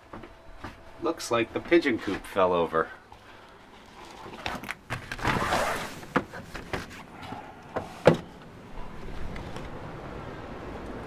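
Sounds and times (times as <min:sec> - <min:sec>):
steady outdoor hiss: 0:00.0 - 0:11.0
sharp knocks and clunks: 0:07.7 - 0:08.4.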